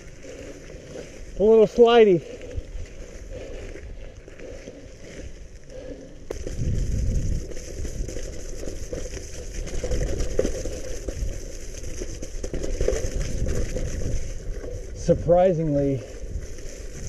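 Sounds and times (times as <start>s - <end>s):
bike tyres crackling on muddy trail: 0.0s - 17.0s
wind rumble on microphone: 6.3s - 17.0s.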